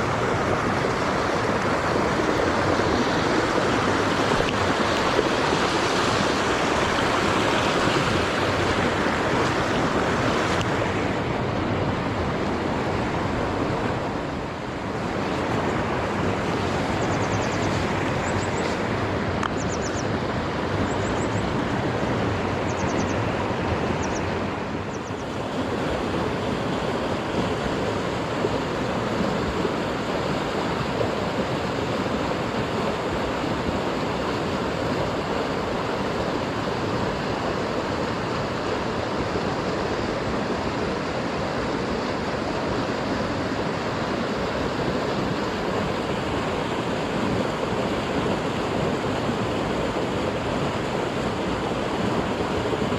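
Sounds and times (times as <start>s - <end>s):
stream rushing over rocks: 0.0s - 52.9s.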